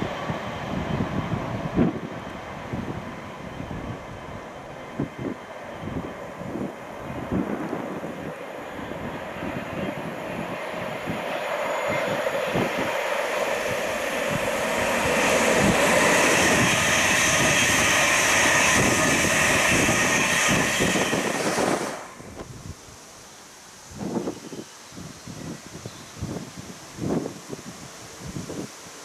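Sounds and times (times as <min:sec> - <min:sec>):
passenger train passing: 0:00.0 - 0:23.9.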